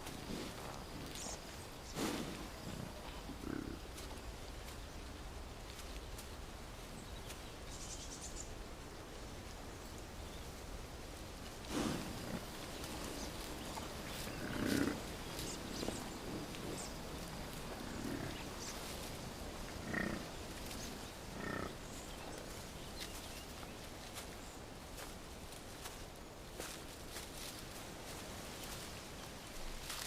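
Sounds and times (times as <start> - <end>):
rustle of foliage: 0.0 - 30.0
bison grunting: 0.2 - 3.8, 11.7 - 18.8, 19.7 - 20.4, 21.2 - 21.8.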